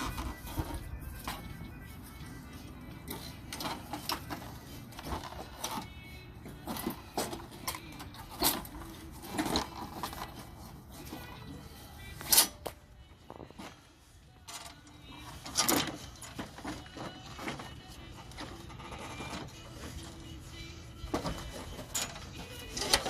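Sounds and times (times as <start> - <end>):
hand tools clicking and clanking: 0.0 - 23.0.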